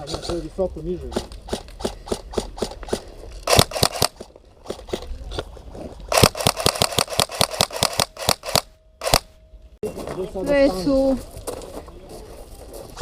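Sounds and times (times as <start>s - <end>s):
airsoft gun firing: 1.1s - 5.0s, 6.1s - 9.4s.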